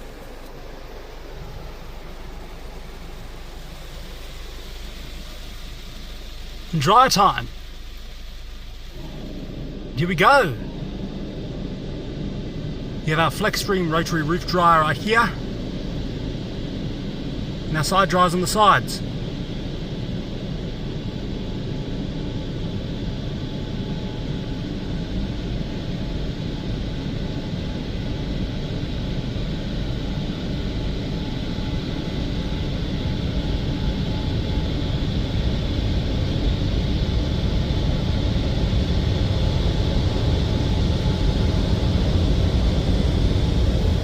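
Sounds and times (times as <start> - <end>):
car wash dryers blowing air: 0.0 - 24.6.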